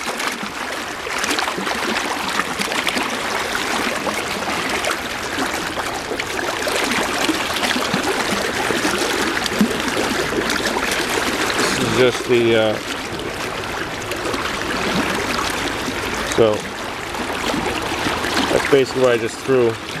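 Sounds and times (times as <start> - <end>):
river water rushing and splashing: 0.0 - 20.0.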